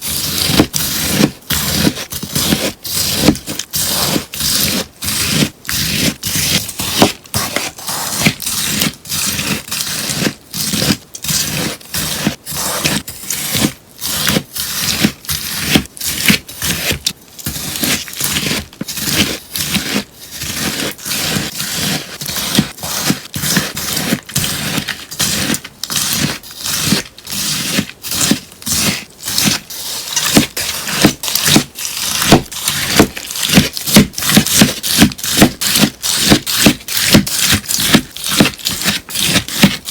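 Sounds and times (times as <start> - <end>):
crunchy slime crackling: 22.4 - 39.9.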